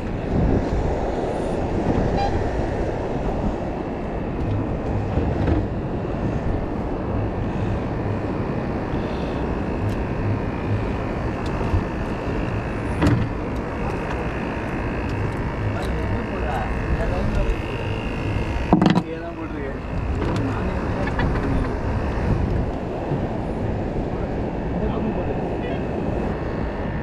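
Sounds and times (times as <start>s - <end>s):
boat engine rumbling: 0.0s - 27.0s
wind: 0.0s - 27.0s.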